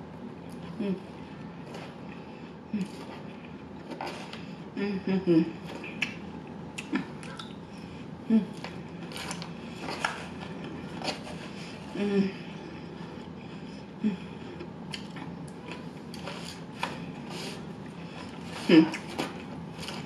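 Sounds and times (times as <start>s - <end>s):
low hums: 0.0s - 20.0s
crunching salad eating: 8.5s - 12.0s, 14.3s - 20.0s.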